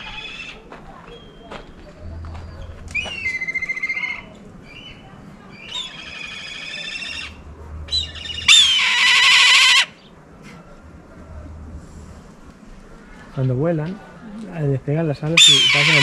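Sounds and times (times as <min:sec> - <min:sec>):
bird calling loudly: 0:02.5 - 0:05.0, 0:05.6 - 0:10.1, 0:15.3 - 0:16.0.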